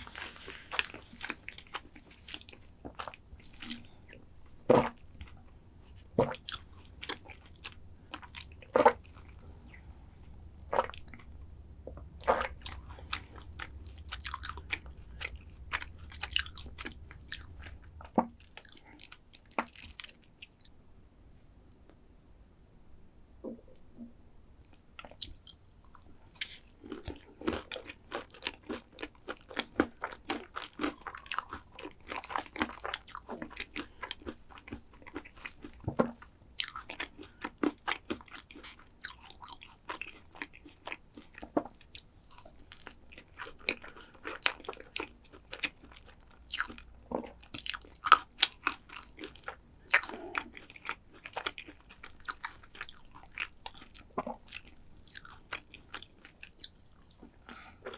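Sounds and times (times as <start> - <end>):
crunching and chewing: 0.0 - 11.3, 11.9 - 20.7, 25.0 - 57.9.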